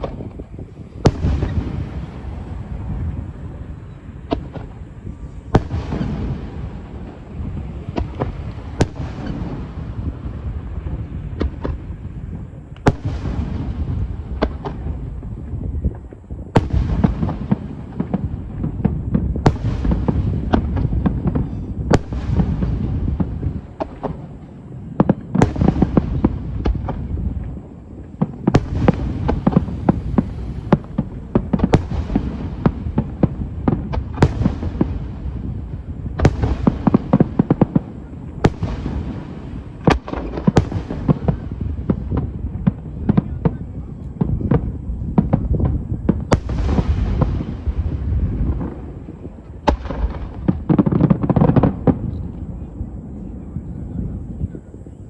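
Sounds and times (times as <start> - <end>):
low rumble: 0.0 - 16.0, 26.1 - 39.8
firework shells booming: 0.0 - 52.8
firework crackling: 0.0 - 55.0.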